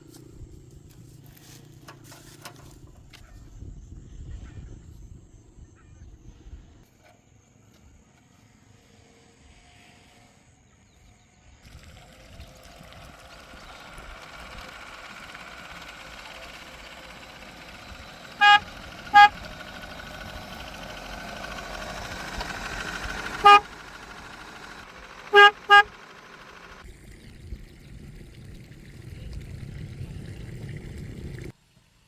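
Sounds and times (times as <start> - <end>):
engine and road noise: 0.0 - 3.4, 11.4 - 32.0
vehicle horn tooting: 17.4 - 26.8.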